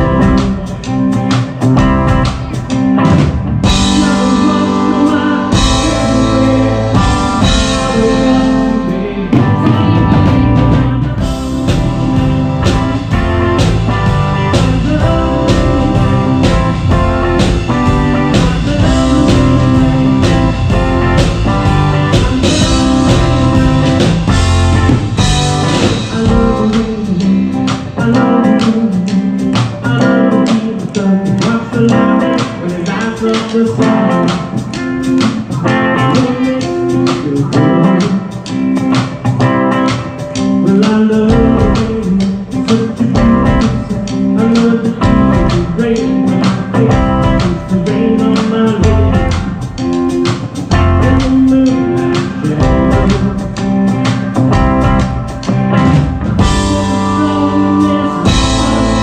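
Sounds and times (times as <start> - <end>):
deep bass: 0.0 - 1.0, 1.6 - 28.2, 45.0 - 45.9, 46.8 - 47.9, 48.7 - 49.7, 50.7 - 51.5, 52.5 - 53.8, 54.4 - 59.0
drum kit beat: 0.0 - 59.0
electric guitar: 0.0 - 59.0.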